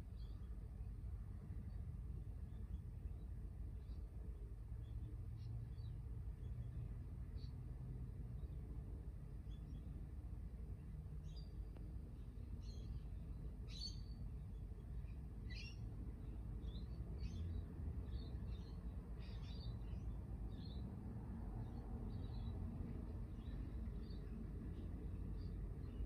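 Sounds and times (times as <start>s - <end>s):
small birds chirping: 10.8s - 26.0s.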